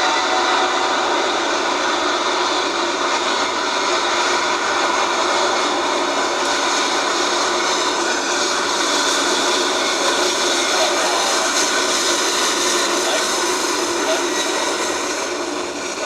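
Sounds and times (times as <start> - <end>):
jet engine roar with whine: 0.0 - 16.0.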